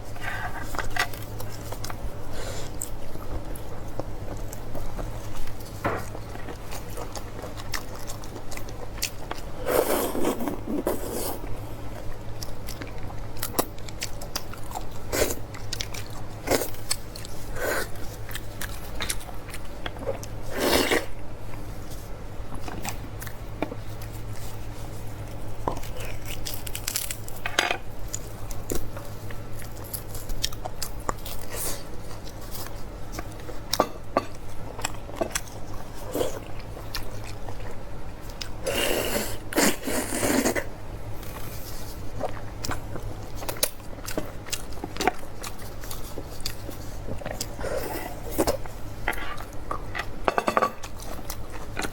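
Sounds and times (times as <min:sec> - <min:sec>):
wet chewing and biting: 0:02.7 - 0:11.3.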